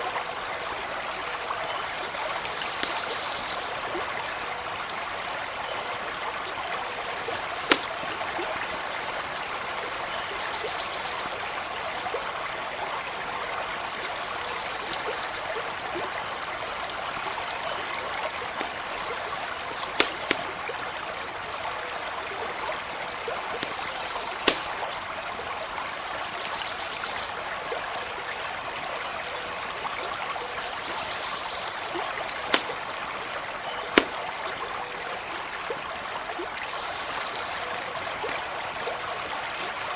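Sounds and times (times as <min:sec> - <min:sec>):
stream running over stones: 0:00.0 - 0:39.9
campfire crackling pops: 0:02.5 - 0:03.6, 0:07.4 - 0:08.5, 0:16.0 - 0:25.5, 0:32.0 - 0:35.0.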